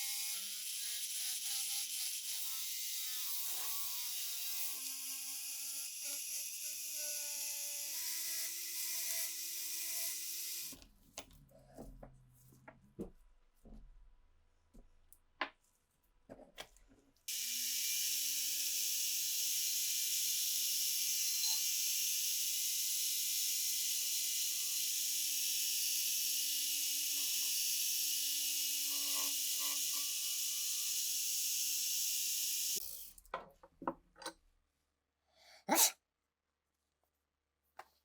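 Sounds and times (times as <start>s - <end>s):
small power tool whirring: 0.0s - 10.8s, 17.3s - 33.2s.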